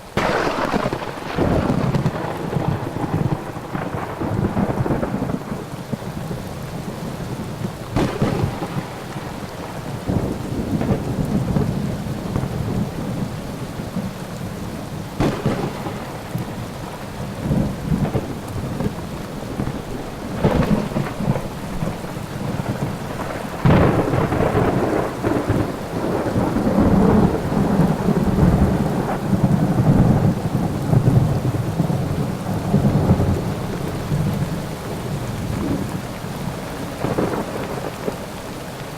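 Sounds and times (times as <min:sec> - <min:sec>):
steady rain: 0:00.0 - 0:38.9
sharp thunder cracks: 0:00.1 - 0:06.0, 0:07.9 - 0:12.8, 0:15.2 - 0:32.0
rolling thunder: 0:00.1 - 0:38.2.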